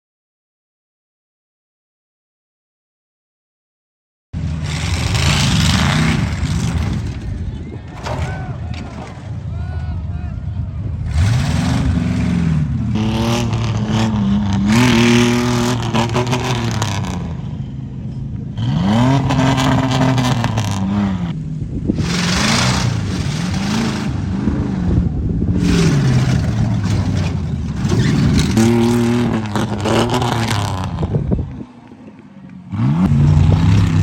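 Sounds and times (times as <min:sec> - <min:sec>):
truck engine revving: 0:04.4 - 0:34.0
rattling noise: 0:04.6 - 0:09.7, 0:25.5 - 0:31.2.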